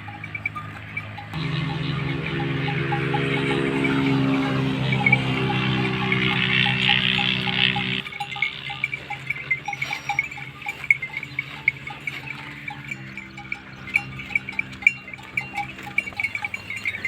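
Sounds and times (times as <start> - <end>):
low steady drone: 0.0 - 9.8
livestock bells clinking: 0.0 - 17.0.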